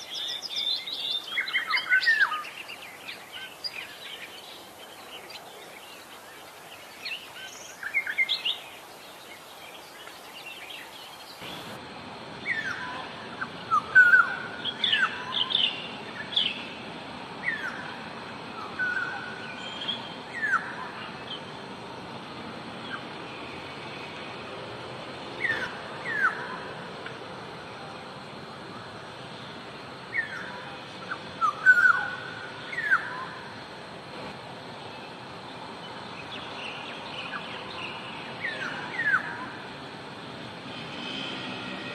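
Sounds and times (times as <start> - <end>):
steady background hiss: 0.0 - 41.9.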